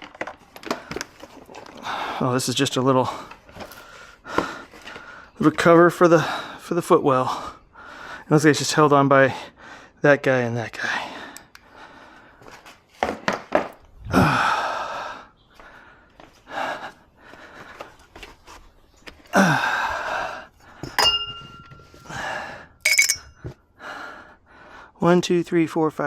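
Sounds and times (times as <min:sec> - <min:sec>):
small hard part clinking: 0:20.8 - 0:22.1, 0:22.8 - 0:23.4.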